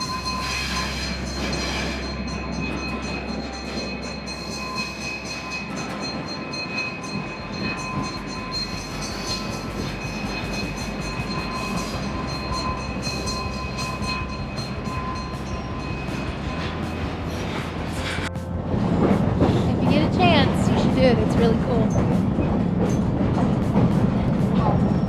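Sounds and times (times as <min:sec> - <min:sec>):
train rumbling along track: 0:00.0 - 0:25.0.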